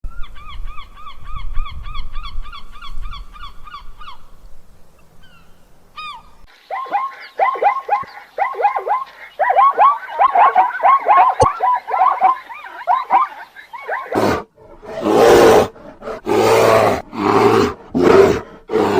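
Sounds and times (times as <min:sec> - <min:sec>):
flock of birds calling: 0:05.2 - 0:14.2.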